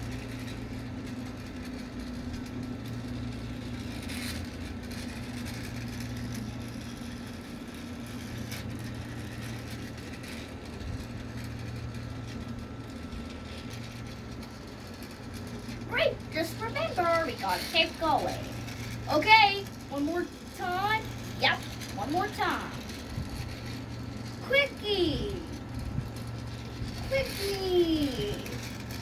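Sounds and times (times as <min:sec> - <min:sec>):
toy train motor running: 0:00.0 - 0:29.0.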